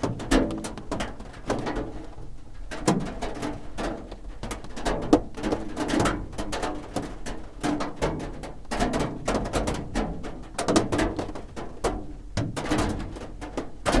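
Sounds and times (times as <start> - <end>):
rain drumming on a roof: 0.0 - 14.0.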